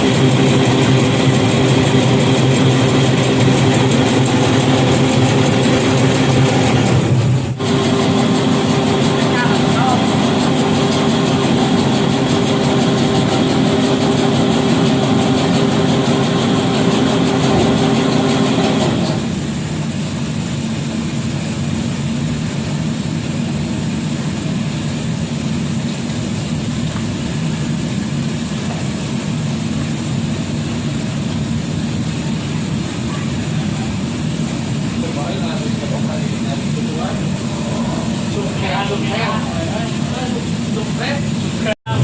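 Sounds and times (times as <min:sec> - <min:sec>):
machine motor running: 0:00.0 - 0:19.5, 0:31.9 - 0:42.0.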